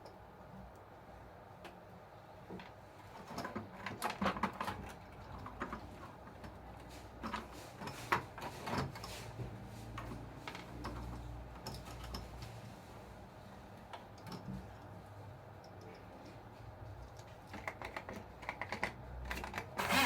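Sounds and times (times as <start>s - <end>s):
plastic parts and tools clicking: 17.2s - 20.0s.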